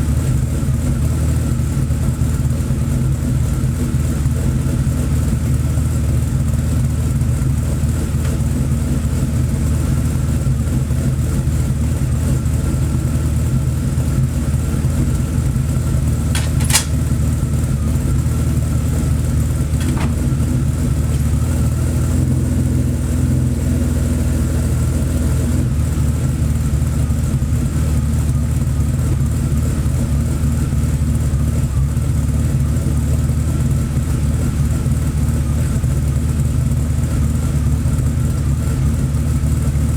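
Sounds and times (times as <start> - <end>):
car engine idling: 0.0 - 39.9
sharp click: 16.4 - 17.1.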